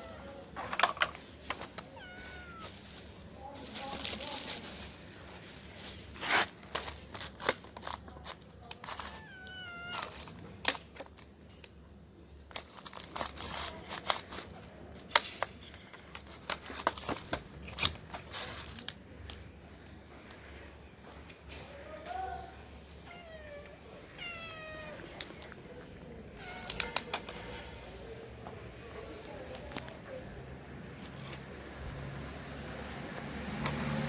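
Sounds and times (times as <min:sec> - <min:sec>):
kittens chewing food: 0:00.0 - 0:21.5
kitten meow: 0:01.9 - 0:02.7, 0:09.0 - 0:10.2, 0:23.1 - 0:25.0.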